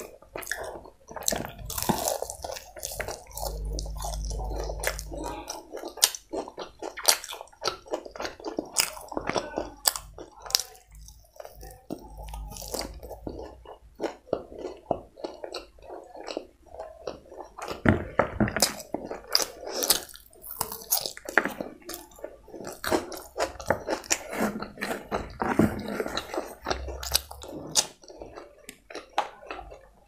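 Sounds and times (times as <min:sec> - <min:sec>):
wet mouth sounds: 0:00.0 - 0:17.8
chewing crunchy food: 0:00.0 - 0:30.0.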